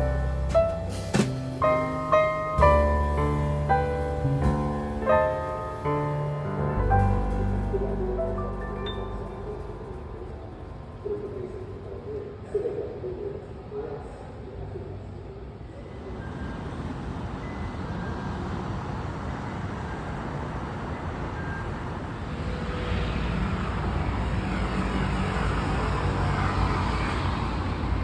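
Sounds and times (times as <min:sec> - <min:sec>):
passing vehicle rumble: 0:00.0 - 0:12.6, 0:16.6 - 0:28.0.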